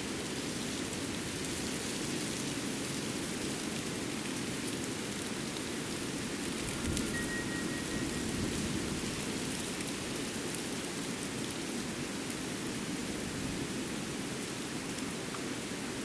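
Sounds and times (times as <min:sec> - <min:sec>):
water rushing: 0:05.7 - 0:10.5
faint high whistle: 0:06.8 - 0:08.6.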